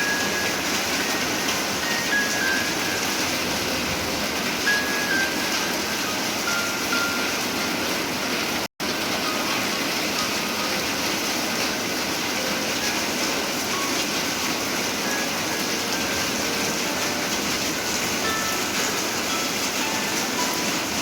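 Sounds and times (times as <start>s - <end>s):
rain falling steadily: 0.0s - 21.0s.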